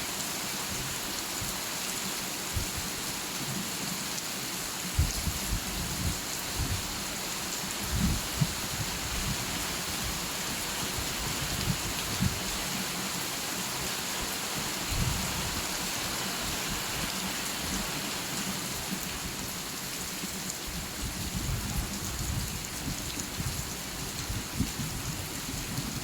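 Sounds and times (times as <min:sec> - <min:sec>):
steady rain hissing: 0:00.0 - 0:26.0.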